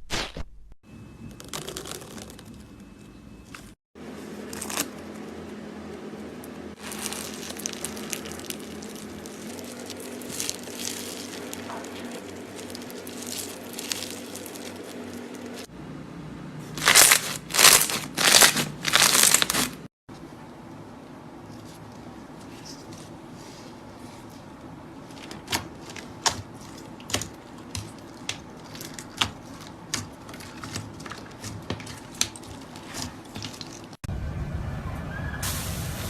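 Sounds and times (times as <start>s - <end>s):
slime squishing and crackling: 1.4s - 2.6s, 6.8s - 15.7s, 16.7s - 19.9s, 23.9s - 34.0s.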